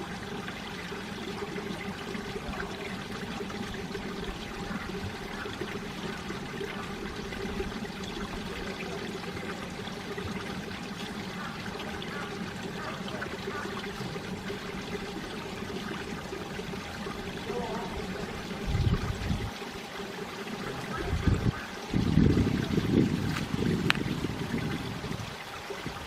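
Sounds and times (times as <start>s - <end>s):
stream running over rocks: 0.0s - 26.0s
wind buffeting microphone: 18.6s - 19.6s, 21.0s - 26.0s.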